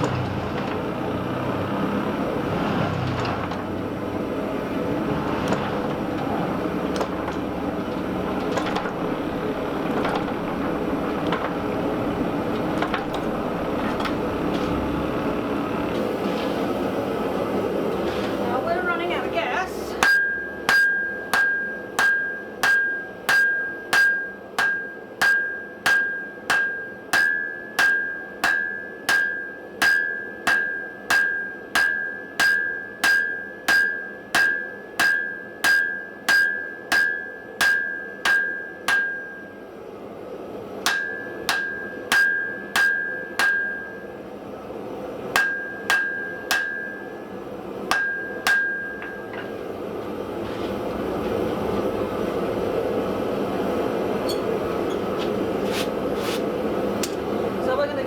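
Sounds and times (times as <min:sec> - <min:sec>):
hammer striking steel on anvil: 0:05.4 - 0:14.8, 0:20.0 - 0:39.7, 0:40.8 - 0:44.3, 0:45.2 - 0:49.7.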